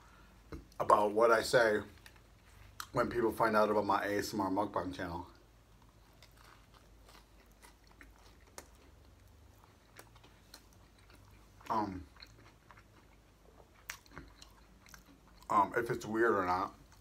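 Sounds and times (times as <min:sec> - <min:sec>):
person chewing crusty bread: 0:05.4 - 0:17.0.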